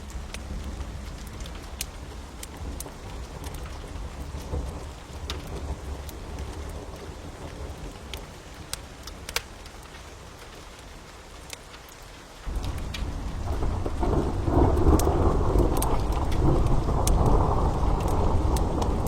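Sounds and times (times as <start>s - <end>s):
fire crackling and popping: 0.0s - 19.0s
steady rain: 0.0s - 19.0s
thunder rumble: 12.5s - 19.0s.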